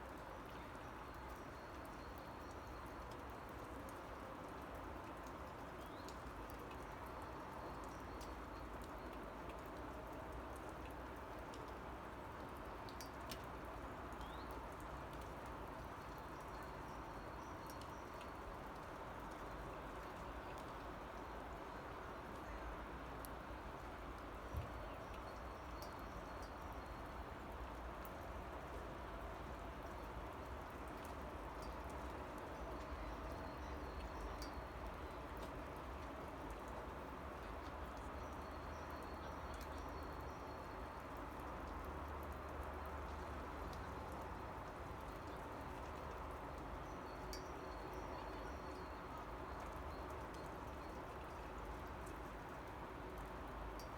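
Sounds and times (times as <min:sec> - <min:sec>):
light rain hiss: 0:00.0 - 0:53.9
drips ticking: 0:30.2 - 0:36.6.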